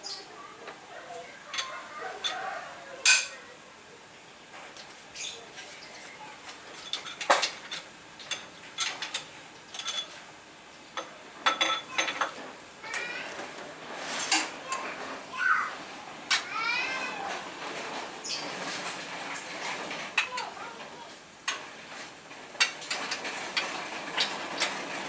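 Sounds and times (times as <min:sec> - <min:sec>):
metal tools clinking and clanking: 0:01.5 - 0:03.4, 0:06.7 - 0:10.2, 0:11.0 - 0:12.4.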